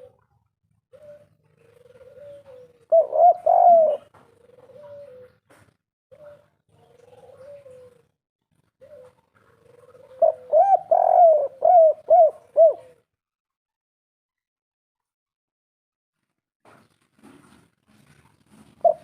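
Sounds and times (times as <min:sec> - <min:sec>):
dove cooing: 0:00.0 - 0:00.2, 0:00.9 - 0:13.1, 0:18.7 - 0:19.0.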